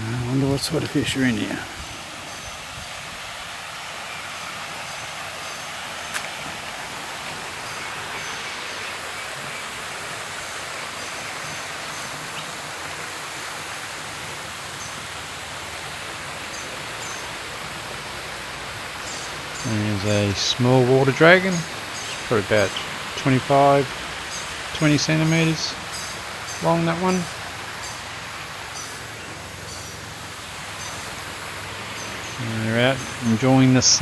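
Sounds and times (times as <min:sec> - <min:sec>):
running water rushing: 0:00.0 - 0:34.0
single click: 0:06.1 - 0:06.4.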